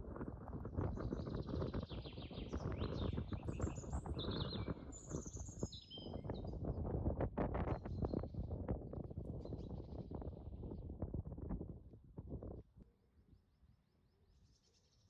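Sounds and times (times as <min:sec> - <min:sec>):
small birds chirping and singing: 0:00.8 - 0:06.7, 0:09.4 - 0:10.8.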